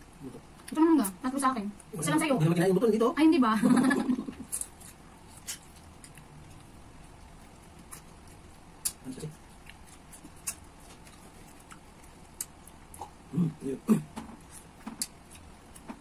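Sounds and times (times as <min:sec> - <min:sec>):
people chewing fruit: 0:00.0 - 0:02.2, 0:03.6 - 0:16.0.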